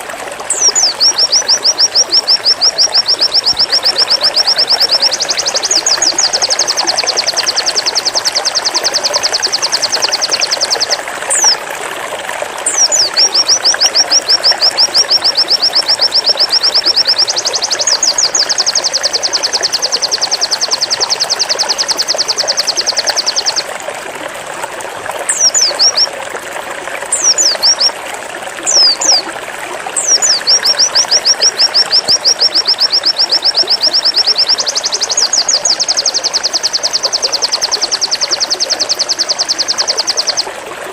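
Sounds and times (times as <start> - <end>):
bird singing fast high notes: 0.5 - 11.6, 28.7 - 29.3.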